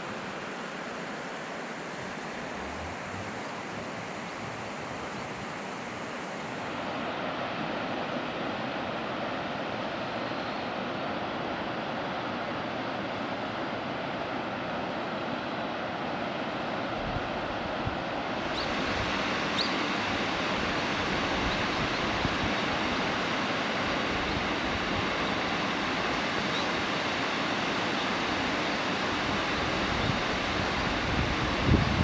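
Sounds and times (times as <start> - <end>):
train running noise: 18.2 - 32.0.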